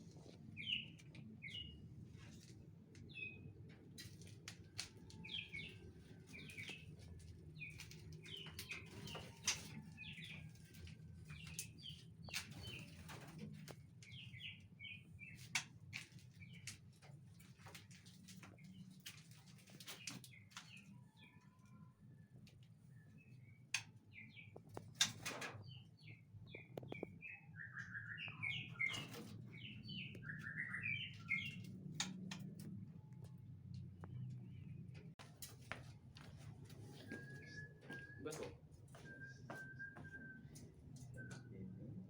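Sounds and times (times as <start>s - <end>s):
birds chirping: 0.0s - 3.7s, 5.1s - 16.9s, 22.8s - 32.9s.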